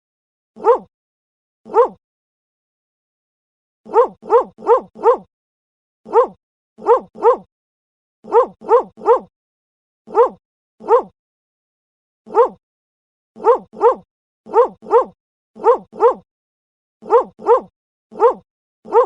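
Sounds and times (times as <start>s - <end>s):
dog barking: 0.6s - 0.9s, 1.7s - 2.0s, 3.9s - 5.3s, 6.1s - 7.5s, 8.2s - 9.3s, 10.1s - 11.1s, 12.3s - 12.6s, 13.4s - 16.3s, 17.0s - 19.0s.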